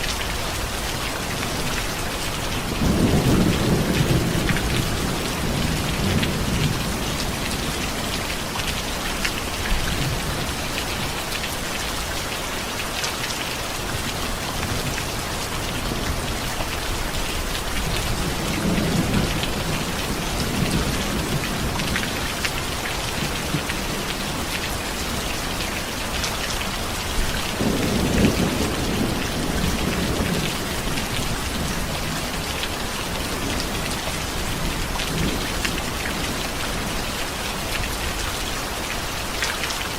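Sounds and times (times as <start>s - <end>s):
steady rain falling: 0.0s - 39.9s
thunder rumbling: 2.6s - 8.4s, 16.0s - 24.5s, 27.2s - 32.4s.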